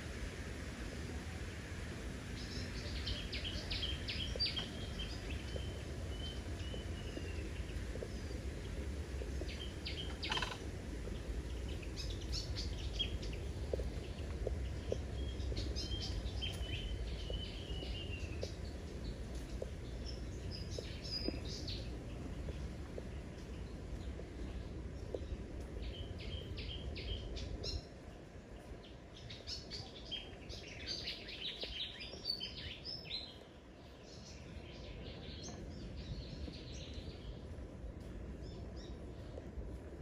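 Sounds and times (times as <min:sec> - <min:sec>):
birds chirping and trilling: 0:09.4 - 0:22.6.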